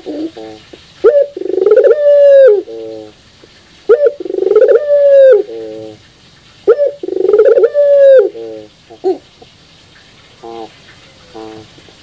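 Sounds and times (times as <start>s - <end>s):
dove cooing loudly: 0.0s - 3.2s, 3.9s - 6.0s, 6.7s - 9.3s.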